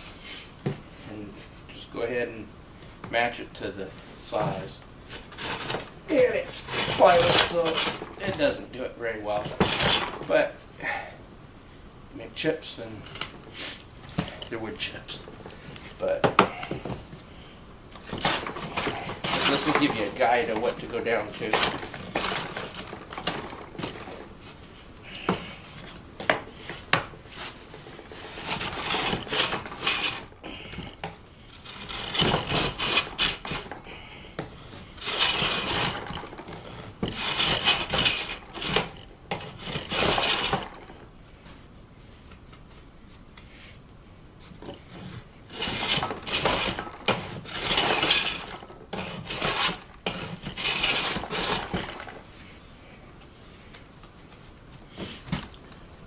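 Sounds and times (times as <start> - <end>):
hand plane shaving wood: 5.1 - 8.5, 18.1 - 22.2, 45.5 - 51.9.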